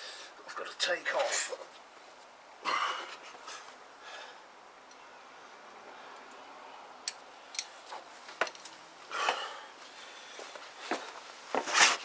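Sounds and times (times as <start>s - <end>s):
scraping rustle: 11.2s - 12.0s.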